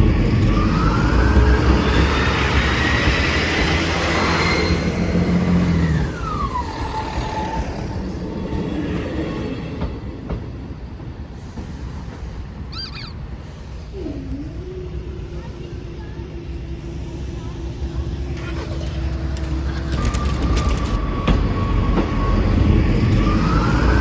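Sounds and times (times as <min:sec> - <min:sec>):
high whine of train: 0:00.0 - 0:24.0
train passing: 0:00.0 - 0:24.0.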